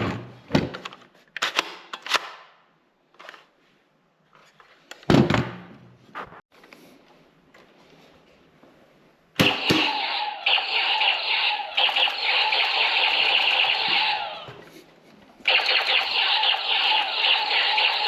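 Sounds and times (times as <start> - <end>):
toy blaster rattling fire: 9.5 - 14.4, 15.5 - 18.0.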